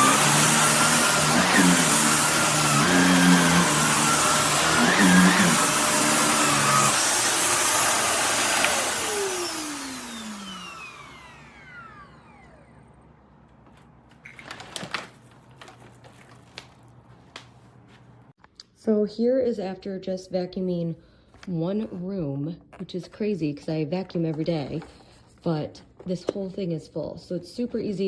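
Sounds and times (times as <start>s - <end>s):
vacuum cleaner motor whine: 0.0s - 13.2s.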